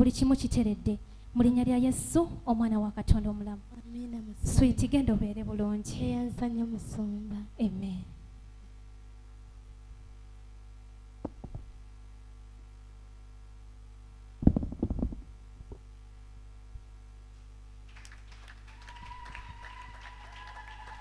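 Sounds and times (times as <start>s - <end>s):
low electrical hum: 0.0s - 21.0s
loud thumps and knocks: 11.2s - 11.7s, 14.4s - 15.8s.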